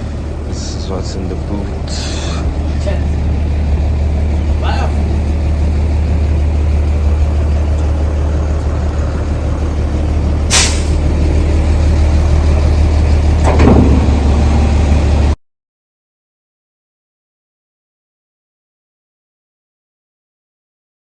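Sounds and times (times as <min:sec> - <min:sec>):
vehicle engine humming: 0:00.0 - 0:15.4.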